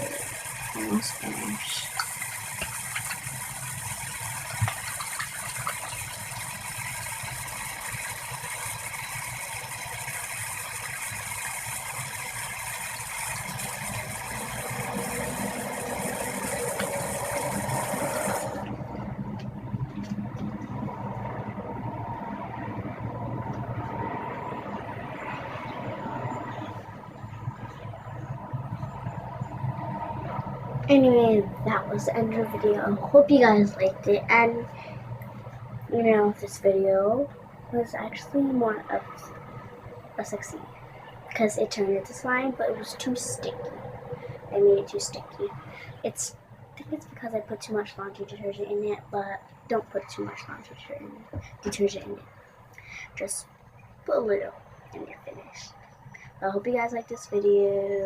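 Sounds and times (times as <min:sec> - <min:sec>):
tap water running into sink: 0:00.0 - 0:18.8.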